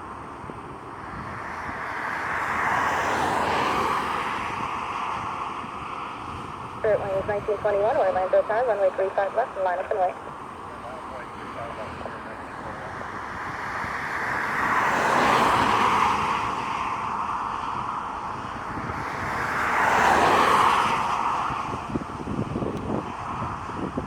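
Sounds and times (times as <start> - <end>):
road vehicles passing: 0.0 - 24.0
wind buffeting microphone: 21.4 - 24.0.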